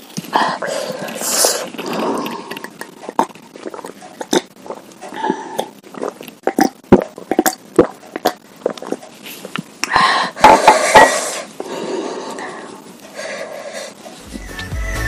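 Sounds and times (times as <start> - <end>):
chewing with wet mouth clicks: 1.0 - 9.7.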